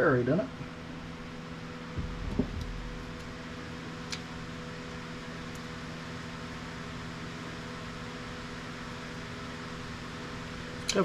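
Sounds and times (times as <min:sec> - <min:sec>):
machine hum: 0:01.0 - 0:04.6.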